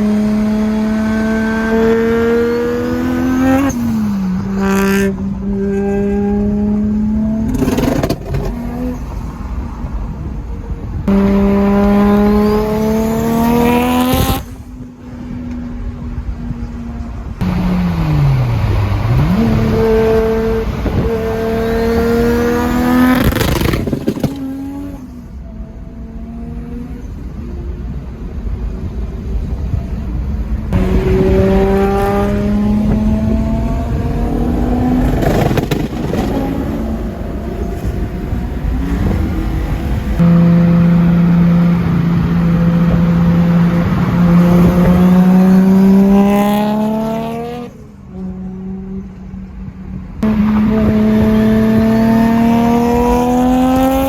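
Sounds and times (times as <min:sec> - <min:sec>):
car engine accelerating hard: 0:00.0 - 0:16.1, 0:17.2 - 0:27.4, 0:29.5 - 0:54.0
sharp exhaust cracks: 0:34.4 - 0:40.3.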